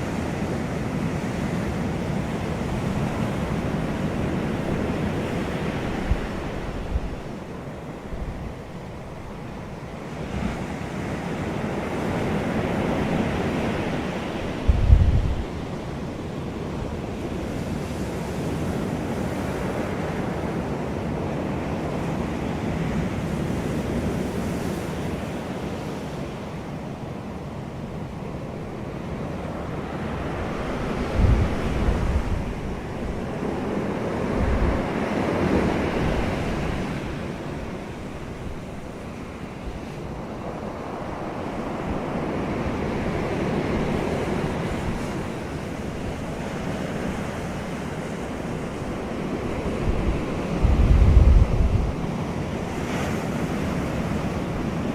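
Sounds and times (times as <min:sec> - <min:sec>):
wind buffeting microphone: 0:00.0 - 0:16.1, 0:29.0 - 0:54.9
sea waves washing in: 0:00.0 - 0:54.9.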